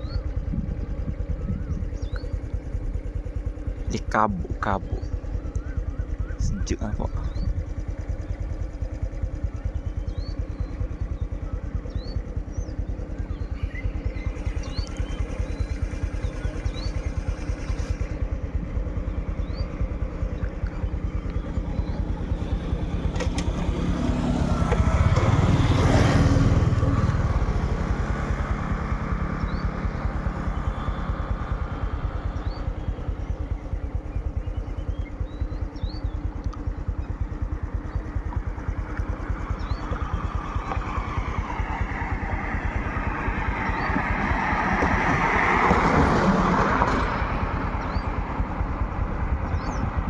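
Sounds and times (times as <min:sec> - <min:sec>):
vehicle engine running: 0:00.0 - 0:50.0
vehicle passing by: 0:21.8 - 0:32.6, 0:39.7 - 0:50.0.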